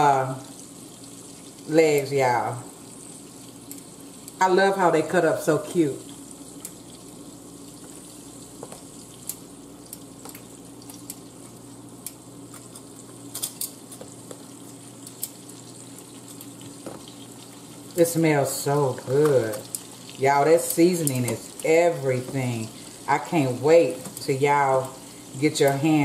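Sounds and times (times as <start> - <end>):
chicken frying in a pan: 0.0 - 26.0
oil popping and crackling: 0.0 - 26.0.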